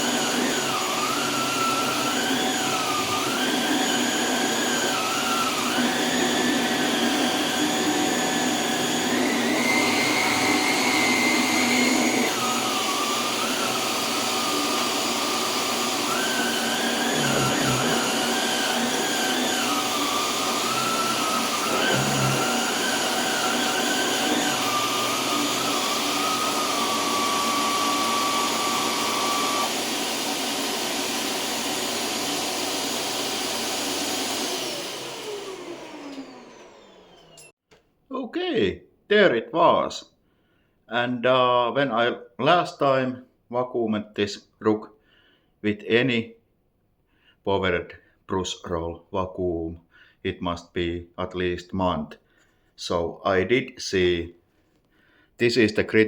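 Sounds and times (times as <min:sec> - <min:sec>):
vacuum cleaner running on a rug: 0:00.0 - 0:37.5.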